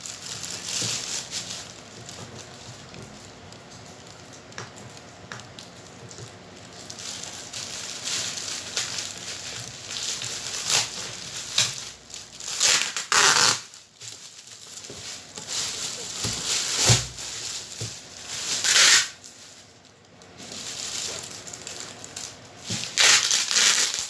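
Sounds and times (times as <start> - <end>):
packaging crinkling and rustling: 0.0 - 24.0.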